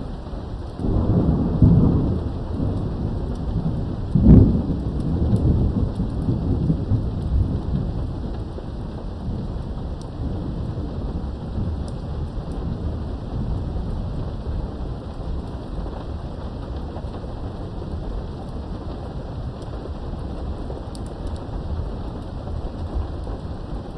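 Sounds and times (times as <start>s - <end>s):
steady rain: 0.0s - 23.9s
sharp thunder clap: 0.8s - 8.2s
thunder rolling: 0.8s - 20.8s.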